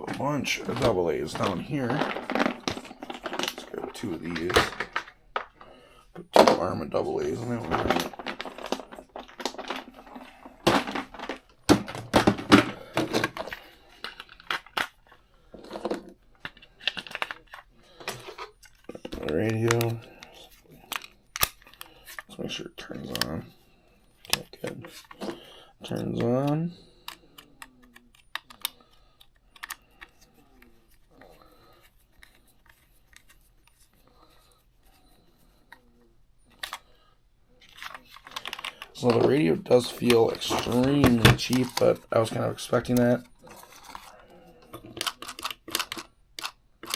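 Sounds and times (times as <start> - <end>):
plastic remote control handled: 7.2 - 22.3, 27.0 - 30.3, 36.5 - 36.8, 37.6 - 46.9
batteries clicking into plastic compartment: 37.6 - 42.0, 44.7 - 46.9.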